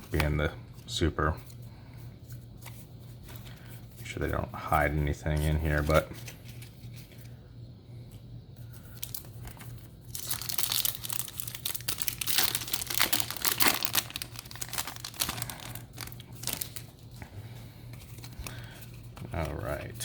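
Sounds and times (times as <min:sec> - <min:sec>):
foil wrapper crinkling: 0:08.7 - 0:17.1, 0:17.8 - 0:20.0.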